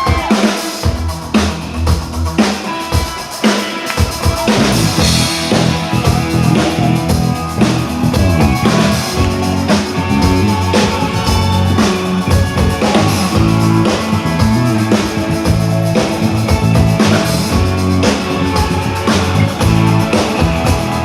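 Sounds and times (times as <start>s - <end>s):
drum kit beating: 0.0s - 21.0s
live rock band playing: 0.0s - 21.0s.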